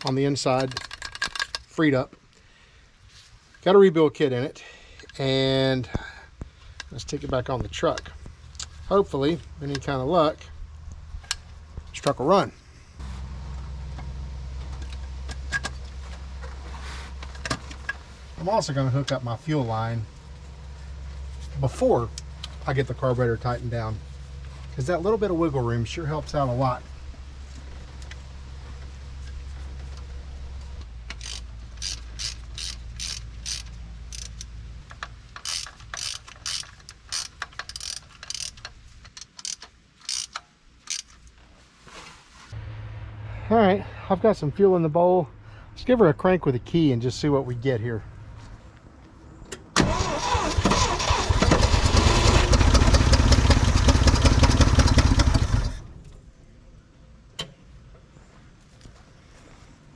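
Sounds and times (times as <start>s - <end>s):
truck engine starting and running: 7.2s - 41.1s, 49.4s - 56.3s
ratchet wrench clicking: 31.1s - 41.2s.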